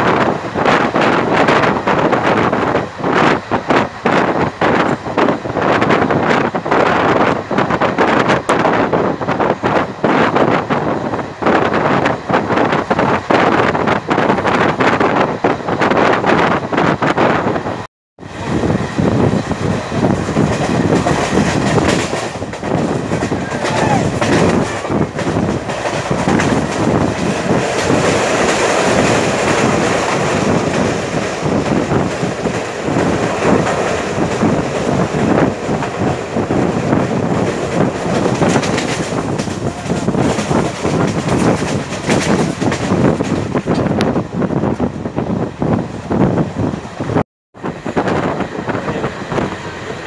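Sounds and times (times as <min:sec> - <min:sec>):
train wheels clattering on track: 0:18.4 - 0:44.9.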